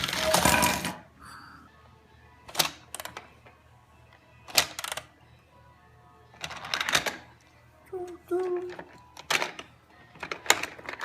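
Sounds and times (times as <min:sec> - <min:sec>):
plastic toy train clicks and knocks: 0:08.6 - 0:11.0.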